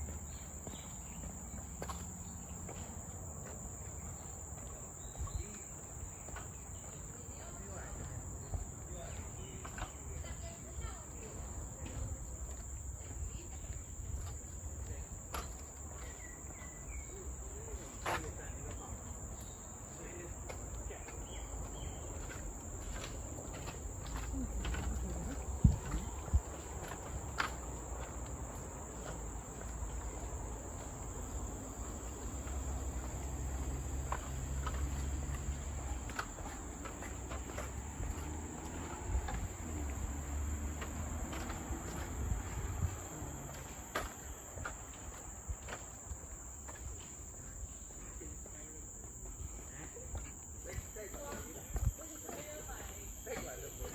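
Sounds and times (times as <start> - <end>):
insects droning: 0.0 - 53.9.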